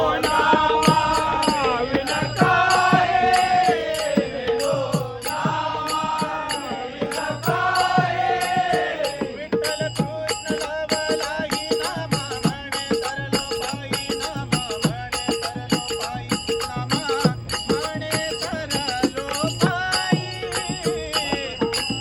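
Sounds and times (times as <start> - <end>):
person singing: 0.0 - 9.7
hand drum beating: 0.0 - 22.0
small hand cymbals: 0.0 - 22.0.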